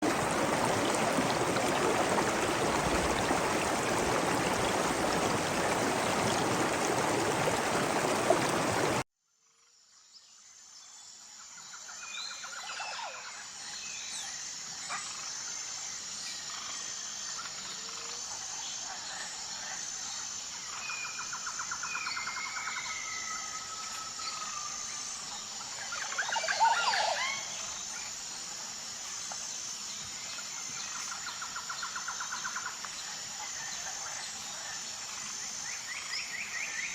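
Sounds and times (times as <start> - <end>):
rushing water: 0.0 - 9.0.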